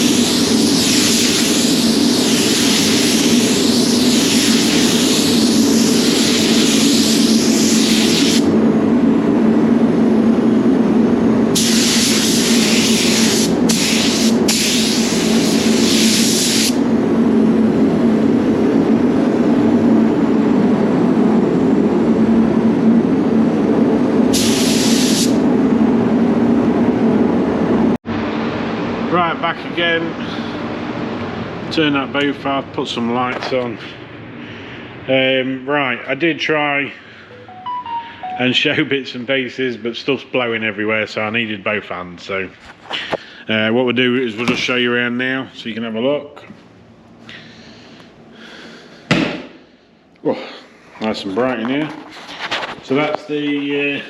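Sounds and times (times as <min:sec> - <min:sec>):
paint spray gun hissing: 0:00.0 - 0:08.5, 0:11.6 - 0:16.8, 0:24.4 - 0:25.4
spray booth fans droning: 0:00.0 - 0:54.0.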